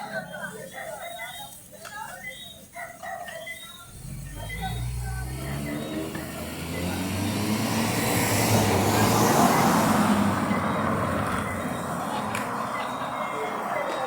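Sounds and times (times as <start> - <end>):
motor vehicle passing by: 3.9 - 14.0.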